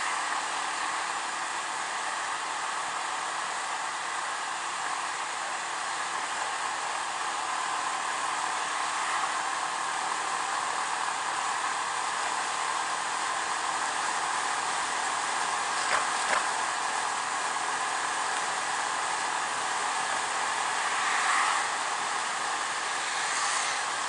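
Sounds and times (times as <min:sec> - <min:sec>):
scooter road noise: 0:15.3 - 0:16.8.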